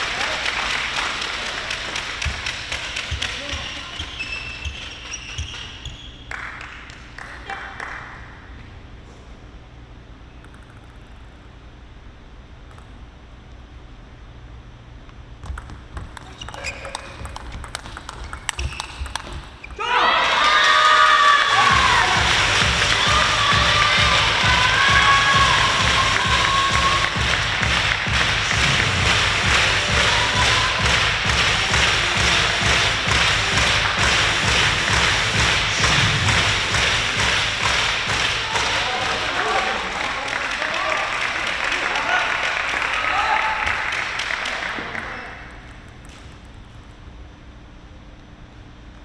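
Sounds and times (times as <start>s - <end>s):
table tennis ball clicking: 15.4s - 19.6s
crowd cheering and shouting: 19.8s - 43.8s
low rhythmic thumps: 21.5s - 39.3s.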